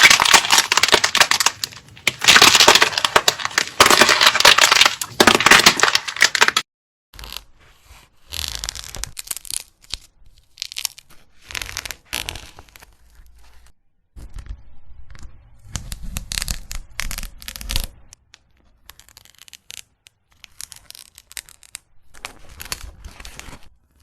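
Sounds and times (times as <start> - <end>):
brittle material crunching: 0.0 - 6.6, 8.5 - 13.0, 18.8 - 23.7.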